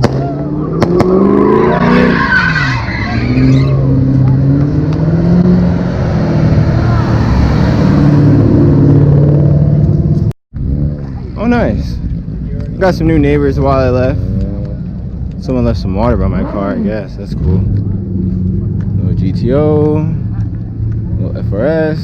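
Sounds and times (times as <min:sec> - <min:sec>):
tyres squealing: 0:01.4 - 0:04.0
car engine revving hard: 0:03.2 - 0:09.7.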